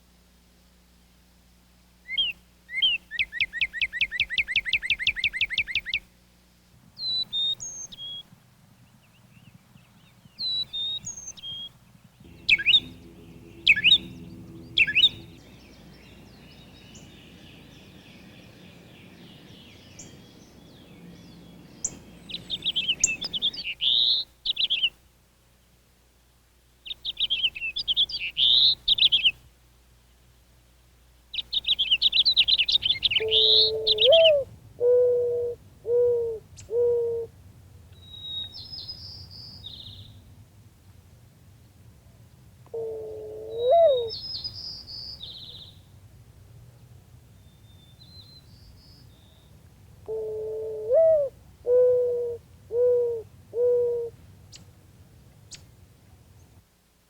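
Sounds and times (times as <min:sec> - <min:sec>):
songbird trill: 0:02.0 - 0:06.1, 0:07.0 - 0:25.0, 0:26.8 - 0:29.4, 0:31.3 - 0:37.3, 0:37.9 - 0:40.4, 0:42.7 - 0:54.8
bird warbling song: 0:02.1 - 0:06.0, 0:07.0 - 0:25.0, 0:26.9 - 0:29.4, 0:31.3 - 0:35.1, 0:37.9 - 0:40.3, 0:43.5 - 0:45.9, 0:47.3 - 0:50.2
high bird call notes: 0:10.4 - 0:20.8, 0:31.6 - 0:37.3
sharp loud bird calls: 0:10.4 - 0:20.9, 0:31.4 - 0:37.3.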